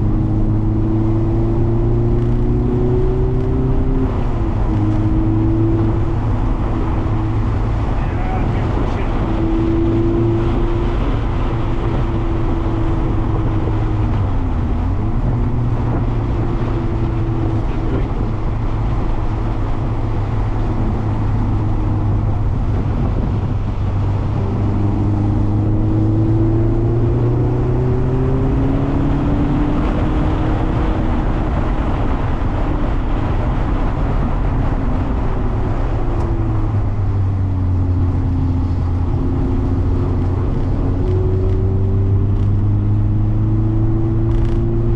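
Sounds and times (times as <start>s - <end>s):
car engine accelerating: 0.0s - 44.9s
road and tyre noise: 0.0s - 44.9s.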